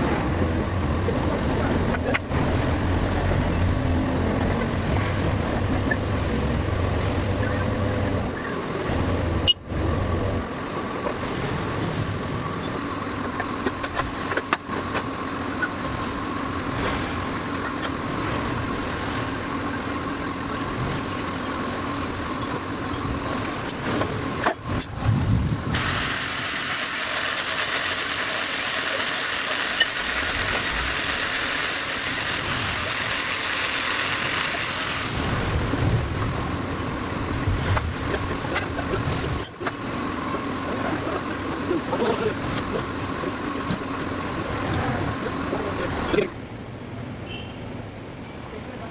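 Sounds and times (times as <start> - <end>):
engine running steadily: 0.0 - 48.9
loud hiss: 25.7 - 28.9.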